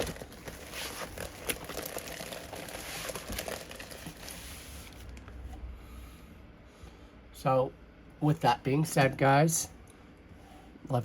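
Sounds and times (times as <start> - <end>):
plastic film crinkling: 0.0 - 5.2.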